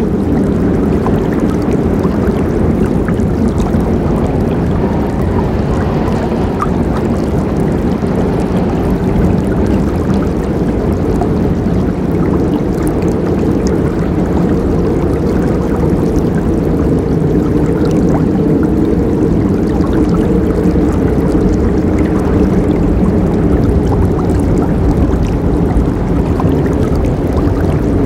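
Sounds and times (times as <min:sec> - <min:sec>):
faint splashes: 0:00.0 - 0:28.0
river water rushing over rocks: 0:01.0 - 0:21.5.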